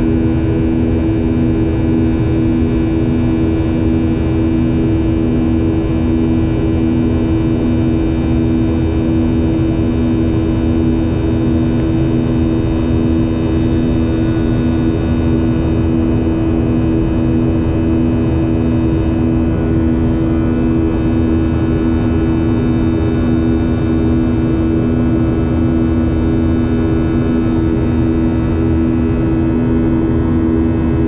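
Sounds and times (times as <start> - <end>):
jet engine drone in cabin: 0.0 - 31.0.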